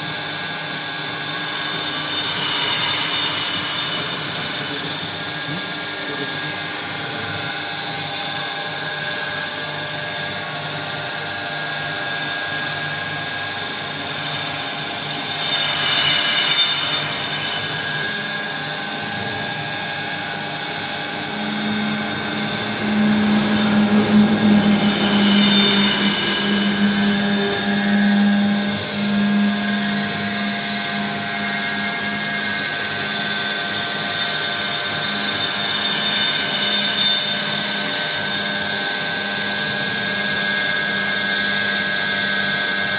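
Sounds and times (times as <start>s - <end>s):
lathe humming with whine: 0.0s - 42.9s
deeper machine hum: 18.2s - 33.5s.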